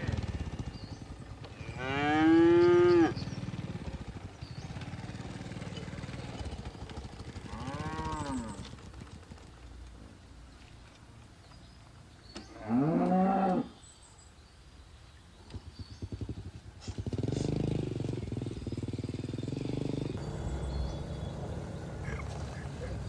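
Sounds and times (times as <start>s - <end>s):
small vehicle engine running: 0.0s - 10.0s, 15.5s - 23.0s
cow mooing: 1.6s - 3.2s, 7.5s - 8.6s, 12.5s - 13.8s.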